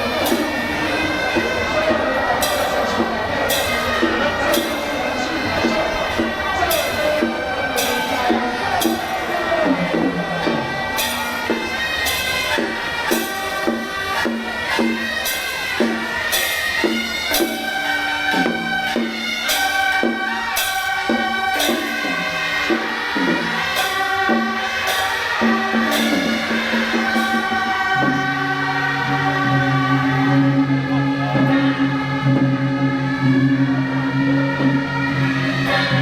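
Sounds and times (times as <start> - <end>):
reedy wind melody: 0.0 - 14.6
metal percussion beat: 0.0 - 29.0.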